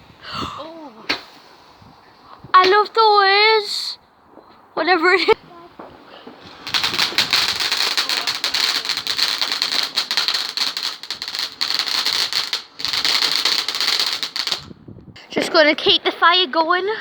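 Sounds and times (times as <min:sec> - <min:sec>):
firework fountain hissing and crackling: 0:04.9 - 0:14.8.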